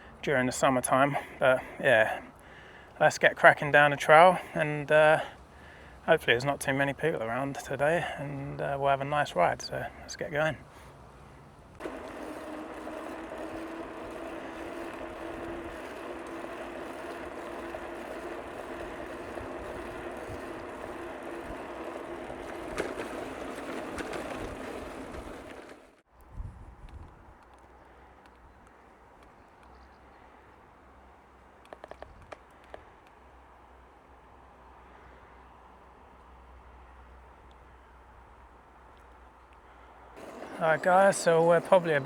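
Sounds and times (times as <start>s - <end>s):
bicycle tyres rolling on trail: 0.0s - 11.2s, 11.8s - 26.1s, 40.2s - 42.0s.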